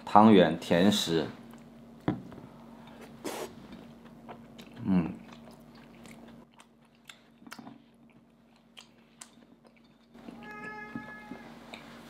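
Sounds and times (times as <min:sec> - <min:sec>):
soft chewing: 0:01.5 - 0:01.8, 0:02.8 - 0:12.0.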